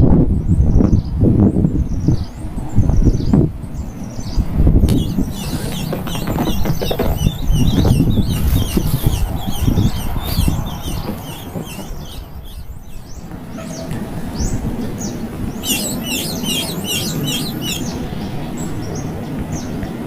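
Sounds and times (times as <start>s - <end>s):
baby birds chirping: 4.8s - 13.2s, 15.6s - 18.0s.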